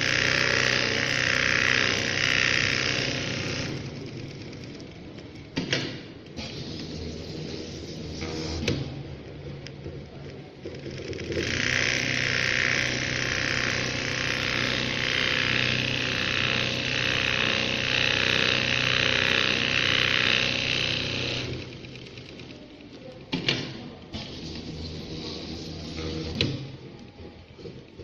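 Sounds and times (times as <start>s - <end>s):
electric sewing machine running: 0.0s - 4.8s, 10.9s - 22.6s.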